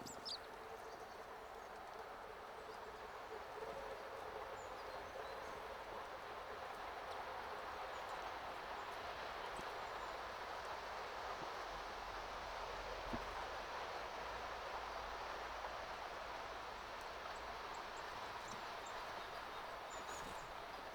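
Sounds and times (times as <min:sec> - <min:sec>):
outdoor background hiss: 0:05.8 - 0:20.9.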